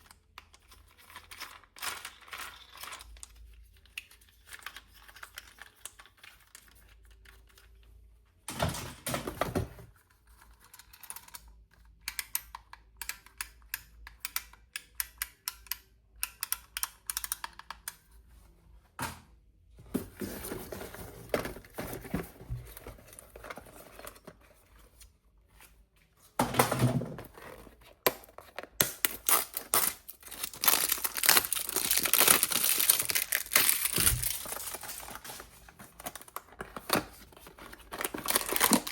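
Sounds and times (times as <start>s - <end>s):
plastic packaging crinkling and tearing: 27.3s - 38.9s.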